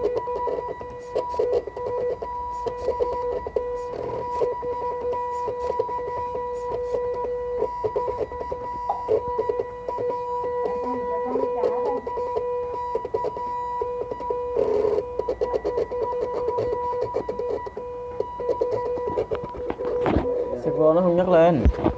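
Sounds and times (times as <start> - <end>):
rapid clicking of plotter axes: 11.6 - 20.2.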